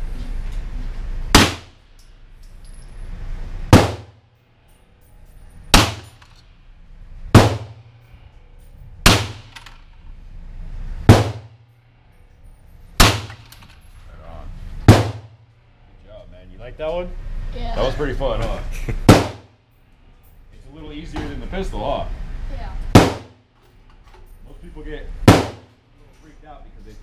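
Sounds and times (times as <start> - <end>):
rifle shots echoing indoors: 5.7 - 6.4, 9.0 - 9.8, 13.0 - 13.8.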